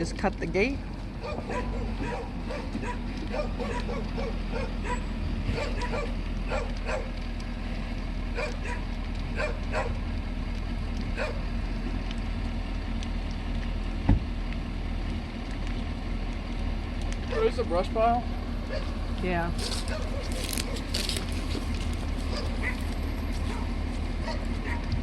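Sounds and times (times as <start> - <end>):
steady low rumble: 0.0 - 25.0
dog barking: 1.2 - 7.1, 8.4 - 10.0, 11.2 - 11.4, 18.7 - 18.9, 19.8 - 20.9, 22.2 - 24.9.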